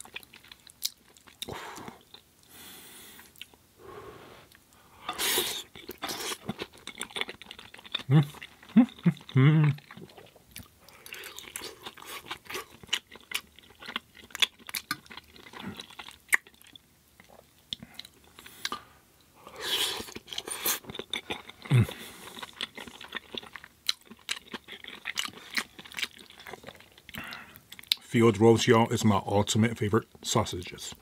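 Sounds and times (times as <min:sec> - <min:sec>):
wet mouth smacks chewing: 0:04.5 - 0:18.8
person humming: 0:08.1 - 0:09.8.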